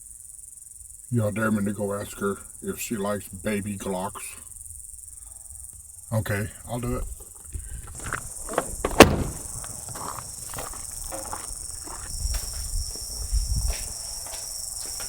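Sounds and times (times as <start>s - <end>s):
insects chirring: 0.0s - 15.0s
rustling: 7.0s - 14.2s
footsteps: 7.1s - 15.0s
sharp knock: 8.6s - 9.7s.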